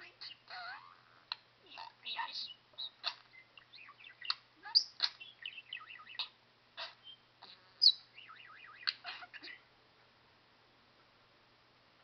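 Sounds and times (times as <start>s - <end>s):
budgerigar chattering and warbling: 0.0s - 9.6s.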